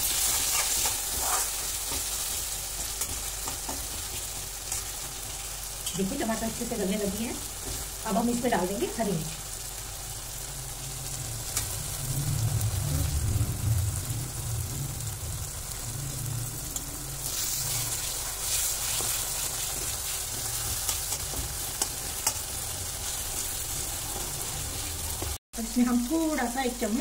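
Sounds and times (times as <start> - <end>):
spoon stirring and scraping pan: 0.0 - 6.1, 17.2 - 25.4
masala sizzling in hot oil: 0.0 - 27.0.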